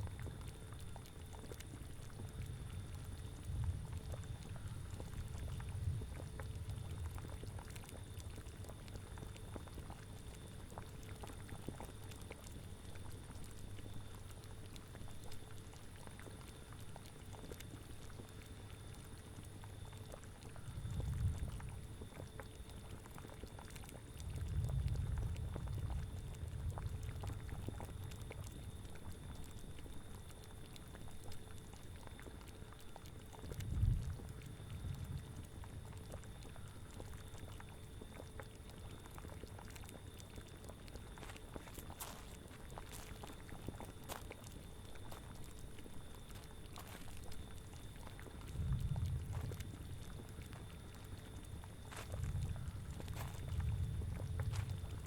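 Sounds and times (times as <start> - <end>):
liquid boiling and bubbling: 0.0 - 55.0
low rumble: 48.4 - 50.1, 52.0 - 55.0.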